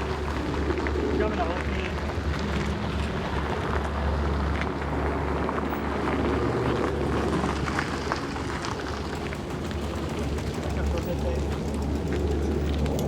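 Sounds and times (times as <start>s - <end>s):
distant turboprop engines droning: 0.0s - 13.0s
wind rumbling on microphone: 0.0s - 13.0s.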